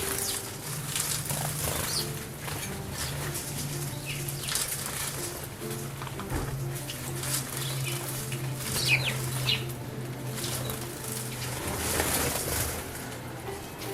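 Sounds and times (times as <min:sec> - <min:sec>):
birds splashing and fluttering: 0:00.0 - 0:05.5, 0:06.3 - 0:13.1
bird chirps: 0:03.9 - 0:04.7, 0:06.9 - 0:09.8.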